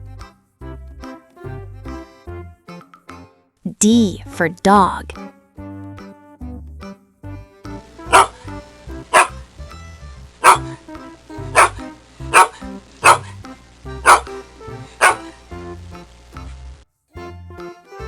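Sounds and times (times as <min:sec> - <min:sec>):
bouncy children's music: 0:00.0 - 0:18.0
dog barking: 0:08.1 - 0:09.4, 0:10.4 - 0:10.8, 0:11.4 - 0:13.4, 0:14.0 - 0:15.4.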